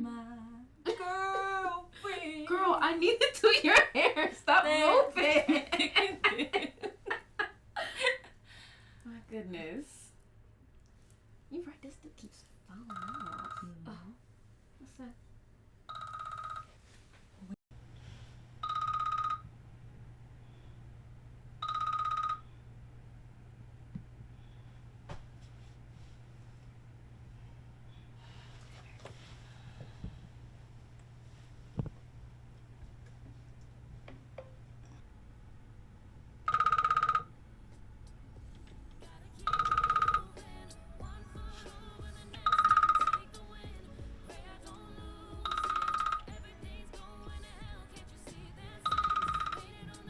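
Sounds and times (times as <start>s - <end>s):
phone ringing electronic trill: 12.9s - 13.7s, 15.9s - 16.8s, 18.6s - 19.6s, 21.6s - 22.8s, 36.4s - 37.4s, 39.4s - 40.6s, 41.3s - 43.8s, 45.3s - 46.8s, 48.8s - 49.9s.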